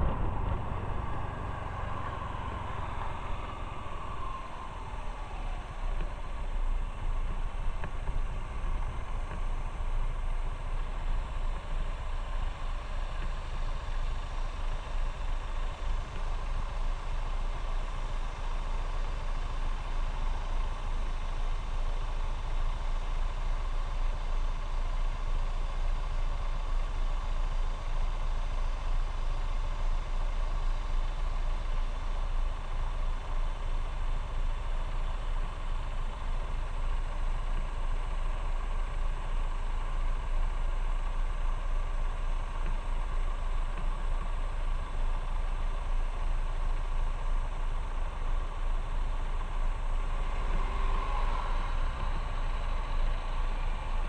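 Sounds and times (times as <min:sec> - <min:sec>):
motorcycle engine running: 0:00.0 - 0:19.8.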